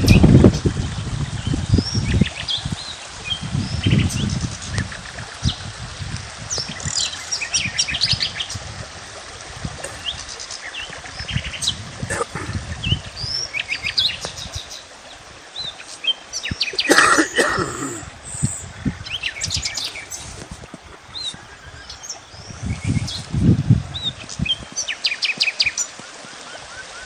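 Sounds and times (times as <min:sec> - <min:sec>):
songbirds chirping and trilling: 0:06.4 - 0:08.7, 0:09.8 - 0:27.0.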